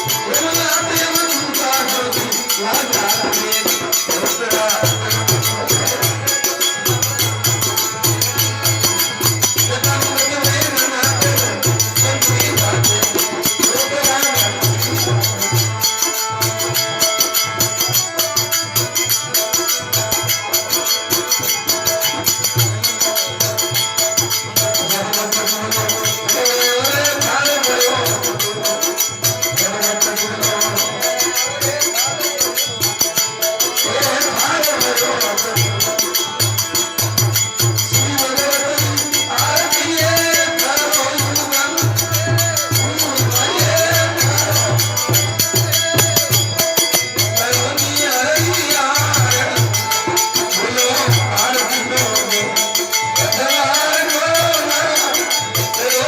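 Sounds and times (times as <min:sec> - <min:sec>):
pulsing drumbeat: 0:00.0 - 0:17.9, 0:41.2 - 0:52.2
metallic jingling rhythm: 0:00.0 - 0:56.0
wavering melody: 0:00.0 - 0:56.0.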